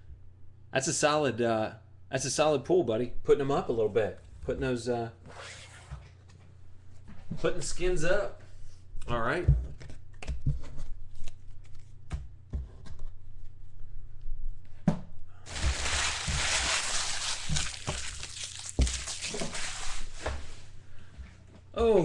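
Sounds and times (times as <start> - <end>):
packaging rustling: 15.5 - 20.1.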